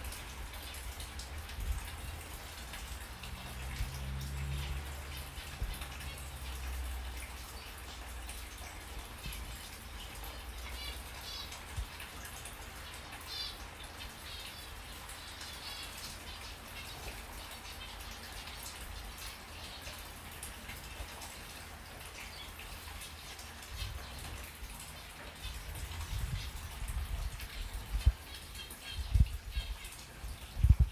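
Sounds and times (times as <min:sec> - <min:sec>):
small birds chirping: 0:07.4 - 0:20.1, 0:22.2 - 0:30.9.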